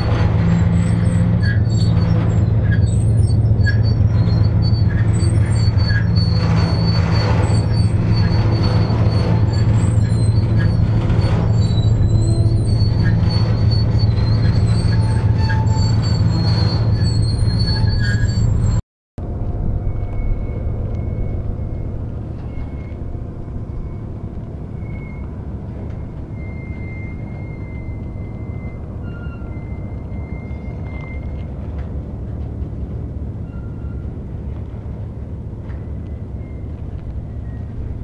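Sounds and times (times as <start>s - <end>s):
wheel squeal: 0.0s - 18.8s, 19.7s - 32.6s, 33.2s - 38.0s
freight train rumbling on rails: 0.0s - 38.0s.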